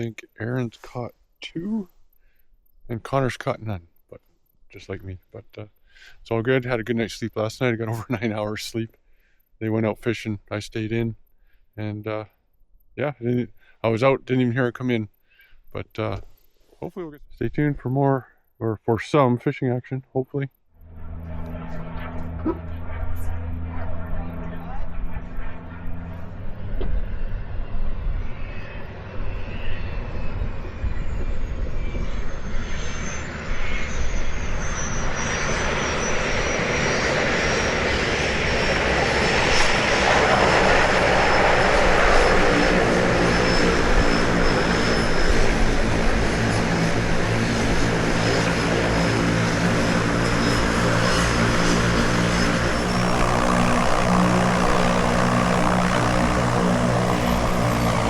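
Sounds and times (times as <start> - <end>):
high whine falling in pitch: 20.8 - 36.8, 40.0 - 58.0
propeller engine droning: 20.8 - 58.0.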